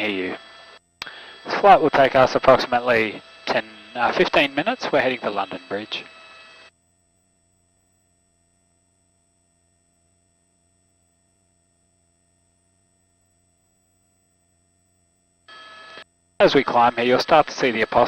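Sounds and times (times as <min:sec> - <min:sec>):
intercom hum: 0:00.0 - 0:06.7, 0:15.5 - 0:18.0.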